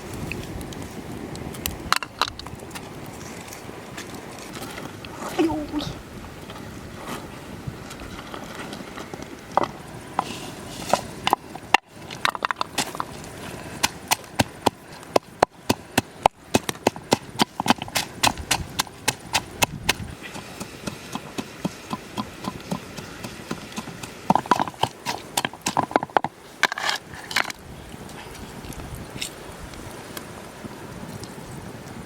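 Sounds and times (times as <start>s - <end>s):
knocking and scraping: 8.1s - 27.6s.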